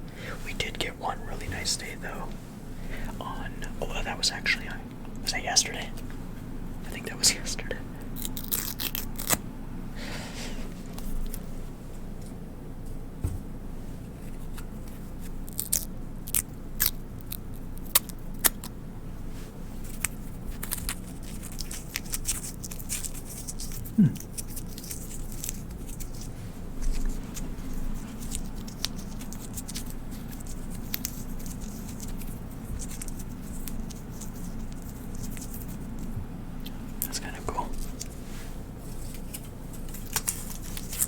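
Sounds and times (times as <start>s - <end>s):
paper tearing and crinkling: 38.9s - 41.0s.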